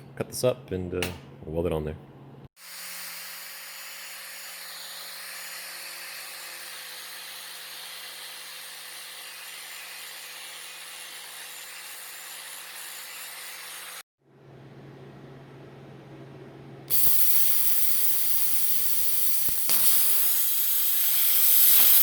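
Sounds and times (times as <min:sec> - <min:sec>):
power tool cutting metal: 0:02.6 - 0:14.0, 0:16.9 - 0:22.0.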